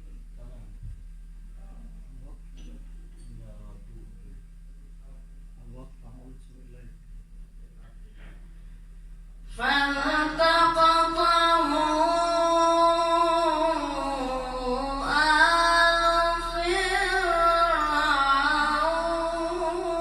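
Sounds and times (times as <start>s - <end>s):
man reciting melodically: 9.6s - 20.0s.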